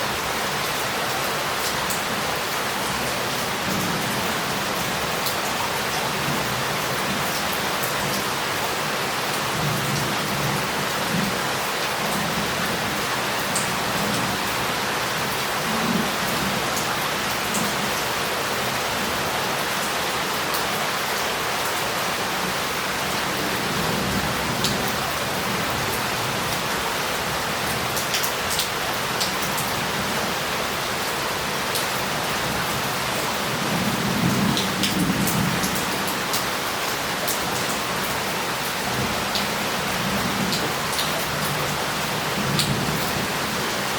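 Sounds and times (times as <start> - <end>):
heavy rain on roof and street: 0.0 - 43.9.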